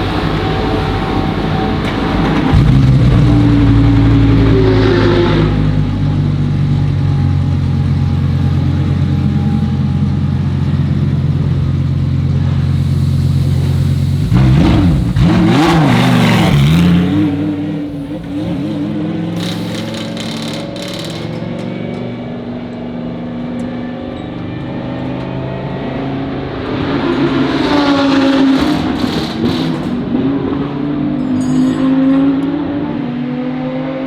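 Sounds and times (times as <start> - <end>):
race car engine revving: 0.0 - 23.4, 25.7 - 31.2.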